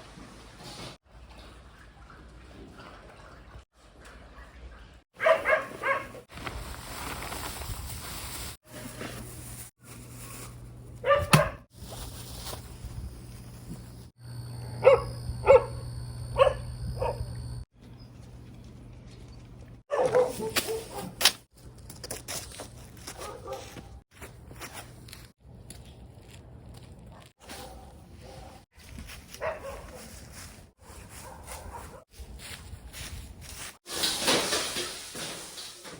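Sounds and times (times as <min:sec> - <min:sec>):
dog barking: 0:05.2 - 0:06.3, 0:11.0 - 0:11.7, 0:14.7 - 0:17.4, 0:19.9 - 0:21.2, 0:23.2 - 0:24.0, 0:27.4 - 0:28.6, 0:29.4 - 0:30.1, 0:30.8 - 0:32.0
steady low hum: 0:12.6 - 0:19.8.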